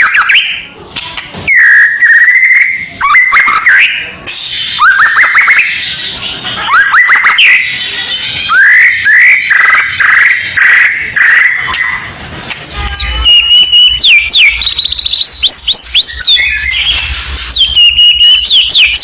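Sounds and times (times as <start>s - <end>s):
bird song with whistles and trills: 0.0s - 0.7s, 1.4s - 12.1s, 12.8s - 19.0s.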